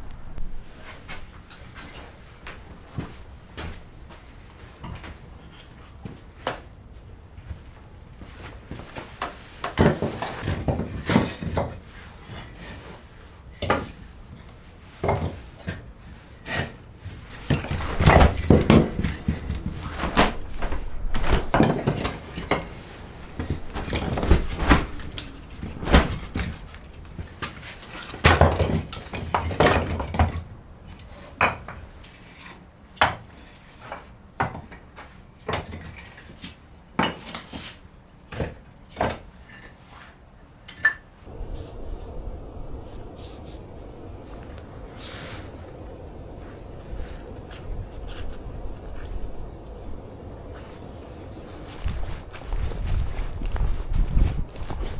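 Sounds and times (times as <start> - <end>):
rustling and scraping: 0.0 - 42.1, 50.4 - 54.9
knocks and thunks: 13.4 - 39.6.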